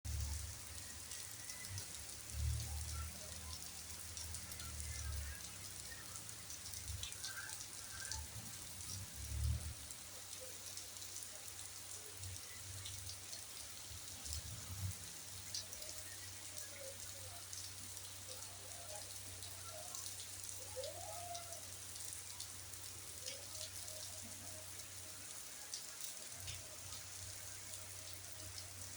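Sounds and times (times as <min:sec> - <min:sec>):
steady rain falling: 0:00.0 - 0:28.9.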